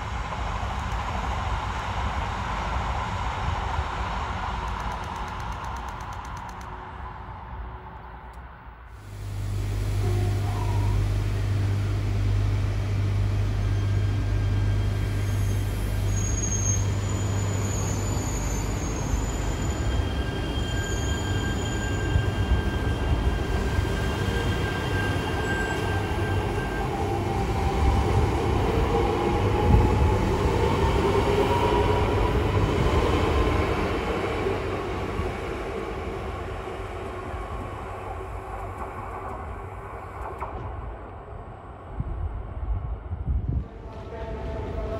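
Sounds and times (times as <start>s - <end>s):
high-speed train passing: 0.0s - 44.9s
rising whine: 9.0s - 18.1s.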